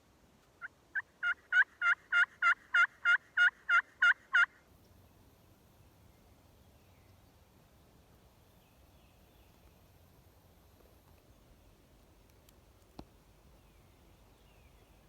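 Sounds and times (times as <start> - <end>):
turkey call yelps: 0.6 - 4.6.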